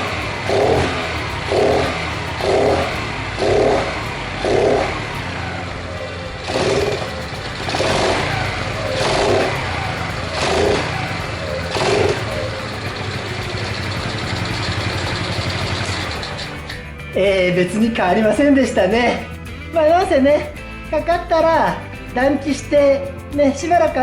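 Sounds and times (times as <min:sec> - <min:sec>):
small engine revving and idling: 0:00.0 - 0:17.1.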